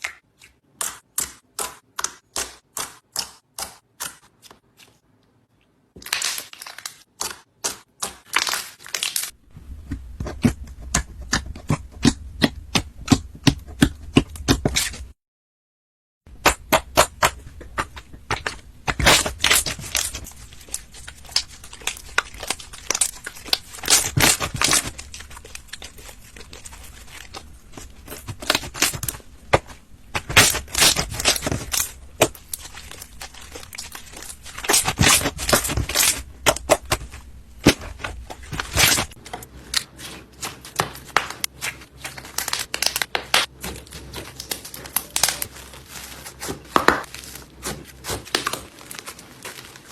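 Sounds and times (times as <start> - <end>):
slime crackling and popping: 16.4 - 49.9.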